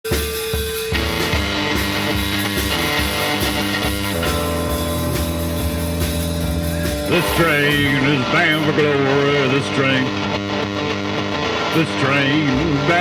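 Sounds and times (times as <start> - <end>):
guitar chords: 0.1 - 13.0
steady bass line: 0.1 - 13.0.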